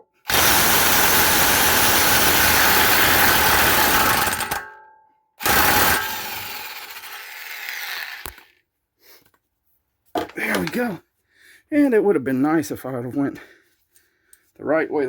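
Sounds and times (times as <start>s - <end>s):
impact wrench hammering: 0.3s - 4.8s, 5.4s - 7.3s
nut spinning whir: 5.4s - 8.6s.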